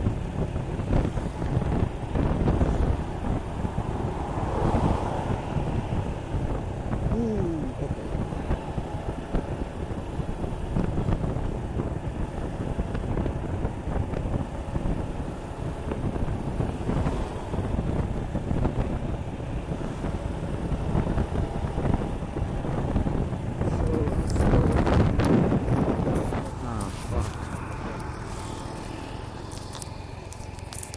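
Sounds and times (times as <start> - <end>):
wind buffeting microphone: 0.0 - 30.9
motorcycle engine running: 7.0 - 30.9.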